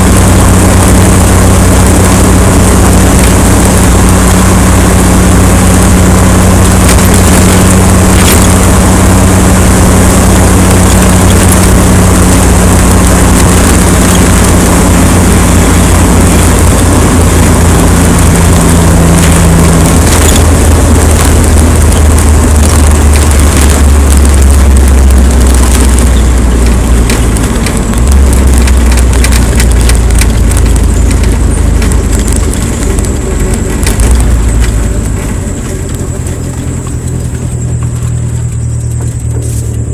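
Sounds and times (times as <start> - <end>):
low drone: 0.0 - 39.9
wind battering microphone: 0.0 - 39.9.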